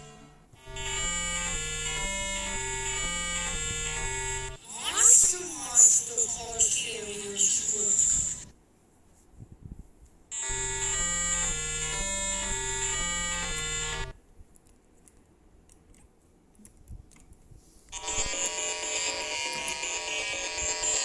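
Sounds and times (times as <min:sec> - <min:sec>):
buzzy electronic tune: 0:00.0 - 0:04.7, 0:07.6 - 0:08.5, 0:10.4 - 0:14.2, 0:18.0 - 0:21.0
sustained buzzy electronic tone: 0:00.0 - 0:04.7, 0:07.6 - 0:08.5, 0:10.4 - 0:14.2, 0:18.0 - 0:21.0.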